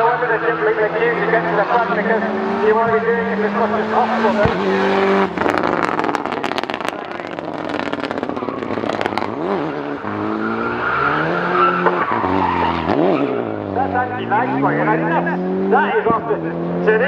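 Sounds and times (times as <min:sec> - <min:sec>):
rally car engine revving: 0:00.0 - 0:17.0
exhaust pops crackling: 0:02.7 - 0:09.5.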